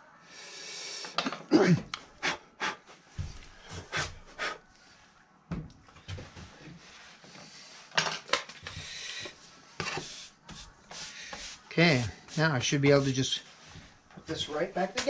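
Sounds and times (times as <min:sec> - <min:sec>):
scraping and brushing: 0:08.8 - 0:13.9.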